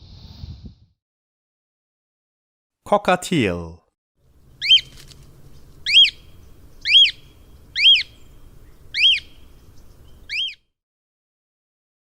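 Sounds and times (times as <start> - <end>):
cockatiel whistled calls: 4.6 - 4.9, 5.8 - 6.2, 6.8 - 7.2, 7.8 - 8.2, 8.9 - 9.4, 10.3 - 10.6.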